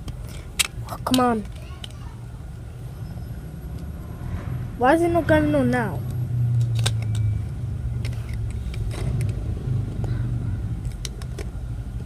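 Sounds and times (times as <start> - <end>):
plastic toy parts clicking: 0.0 - 2.0, 6.6 - 7.3, 8.0 - 9.4, 10.8 - 11.6
vehicle engine rumble: 0.0 - 12.0.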